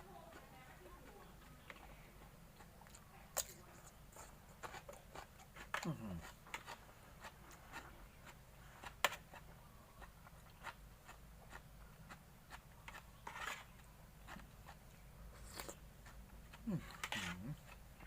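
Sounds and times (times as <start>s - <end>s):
biting crunch: 14.3s - 17.8s
wet chewing mouth clicks: 14.3s - 17.8s.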